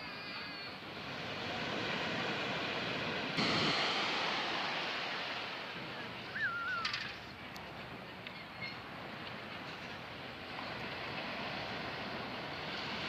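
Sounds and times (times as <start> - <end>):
sea waves washing on shore: 0.0 - 13.0
high wavering call: 6.3 - 7.2.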